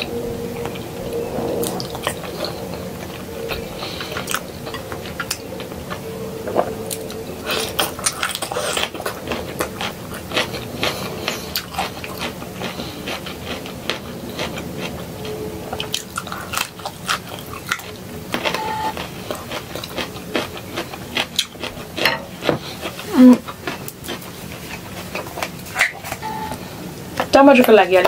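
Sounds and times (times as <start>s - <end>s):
person chewing crunchy food: 0.0s - 27.3s.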